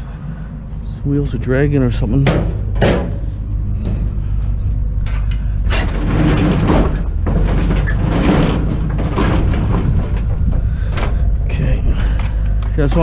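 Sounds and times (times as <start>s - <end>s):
steady low rumble: 0.0s - 13.0s
barbecue rolling on dragging wheels: 4.5s - 13.0s.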